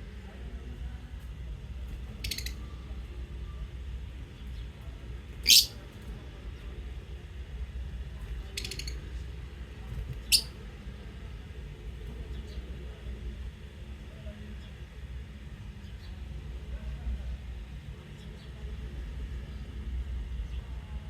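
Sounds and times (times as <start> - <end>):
lovebird buzzy trill: 2.2 - 2.6, 5.4 - 5.8, 10.2 - 10.5
lovebird shrill chirps: 2.2 - 2.6, 5.4 - 5.8, 10.2 - 10.5.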